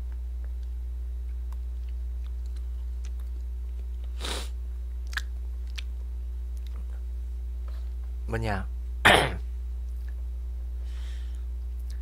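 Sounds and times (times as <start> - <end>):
low electrical hum: 0.0 - 12.0
person chewing: 0.5 - 5.9.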